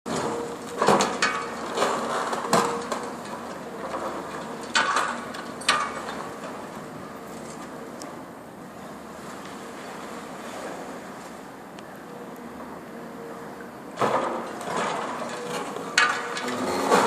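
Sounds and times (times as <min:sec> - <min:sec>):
demolition machine hum: 0:00.1 - 0:17.0.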